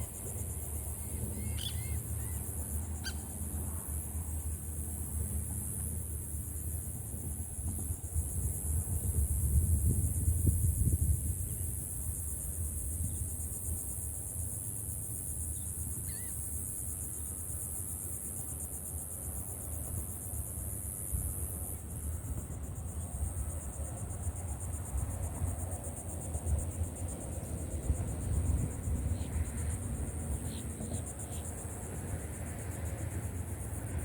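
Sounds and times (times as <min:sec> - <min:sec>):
insects trilling: 0:00.0 - 0:08.8, 0:11.4 - 0:17.7, 0:20.3 - 0:34.0
wind rumble on microphone: 0:04.8 - 0:14.0, 0:21.1 - 0:34.0.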